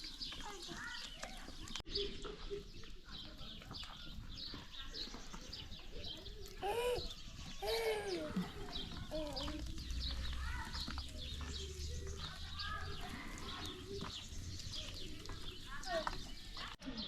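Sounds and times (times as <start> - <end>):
small birds chirping: 0.0 - 17.0
long animal calls: 6.6 - 8.5.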